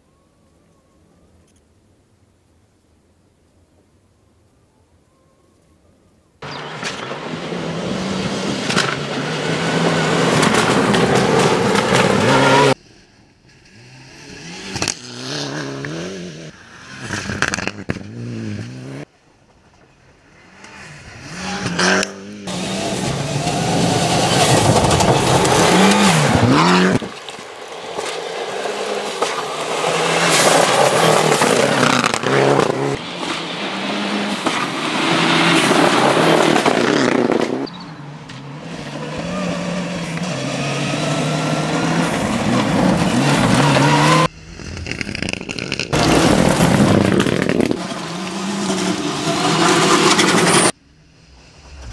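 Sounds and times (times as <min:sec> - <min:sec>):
rally car engines revving: 0:06.4 - 0:12.8, 0:13.5 - 0:19.1, 0:20.4 - 0:51.9
tyres on loose gravel: 0:06.4 - 0:12.8, 0:22.5 - 0:38.0, 0:40.9 - 0:51.9.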